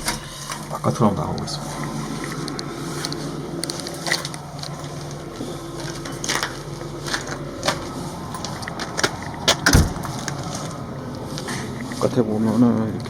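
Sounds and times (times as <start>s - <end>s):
door clatter: 9.6s - 10.2s
heavy thump: 9.7s - 10.2s.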